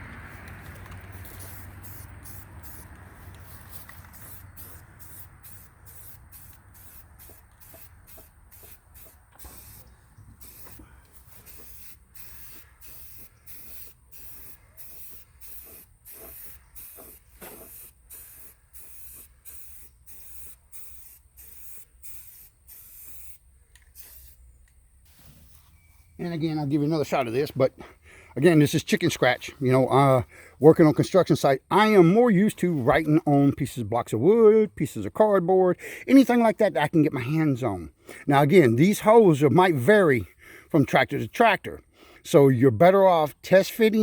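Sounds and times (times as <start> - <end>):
aerosol spray can hissing: 1.1 - 24.4.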